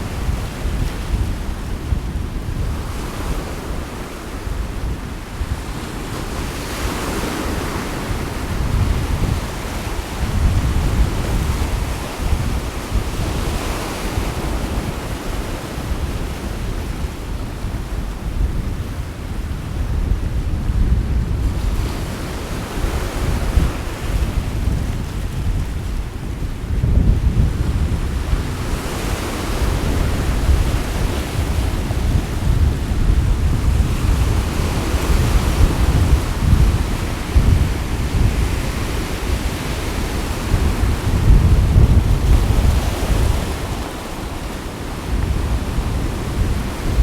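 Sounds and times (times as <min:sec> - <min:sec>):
sea waves washing ashore: 0:00.0 - 0:47.0
wind buffeting microphone: 0:00.0 - 0:47.0.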